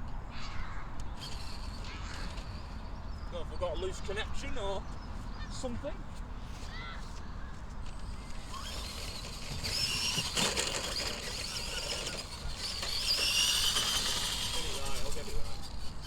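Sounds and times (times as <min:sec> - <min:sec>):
toy truck motor whining: 0:01.2 - 0:04.1, 0:07.8 - 0:16.0.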